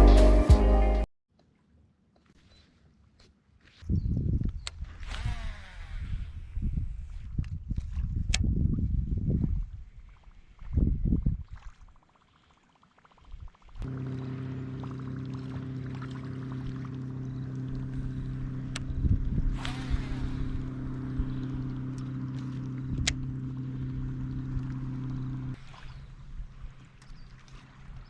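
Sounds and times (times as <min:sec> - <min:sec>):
boat motor running: 0:13.8 - 0:28.0.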